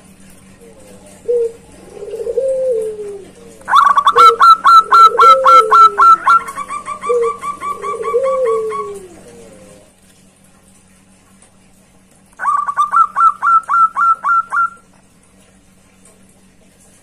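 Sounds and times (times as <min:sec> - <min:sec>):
dove cooing: 0:00.5 - 0:09.9, 0:12.4 - 0:14.9.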